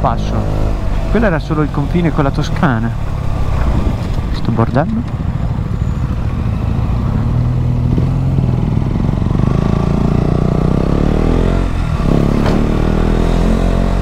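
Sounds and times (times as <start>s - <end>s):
motorcycle engine revving: 0.0s - 14.0s
wind rumble on microphone: 3.5s - 6.5s.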